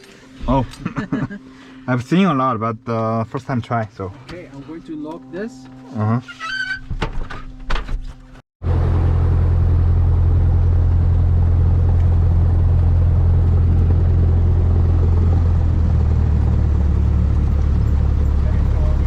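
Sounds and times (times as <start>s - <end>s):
airplane piston engine drone: 8.7s - 19.0s.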